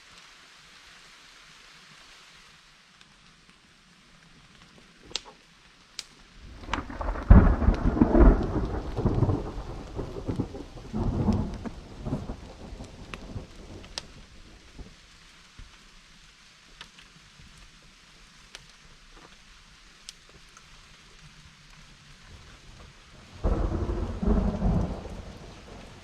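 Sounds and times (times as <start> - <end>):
steady rain: 0.0 - 26.0
thunder rolling: 6.4 - 13.9, 23.3 - 26.0.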